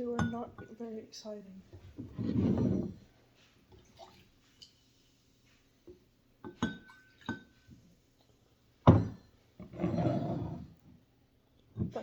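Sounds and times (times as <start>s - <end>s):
glassware clinking: 0.1s - 0.8s, 6.4s - 7.7s, 8.8s - 10.5s.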